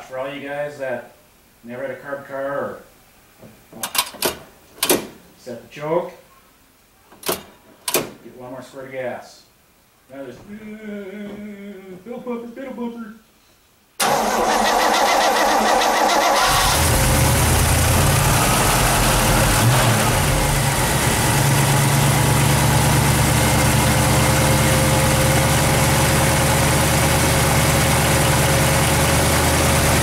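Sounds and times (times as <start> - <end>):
car engine cranking and starting: 14.0 - 30.0.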